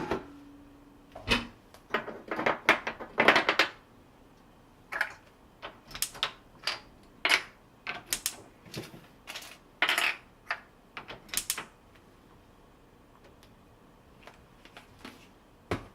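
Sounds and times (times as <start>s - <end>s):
hard objects clicking and knocking: 1.9s - 3.8s.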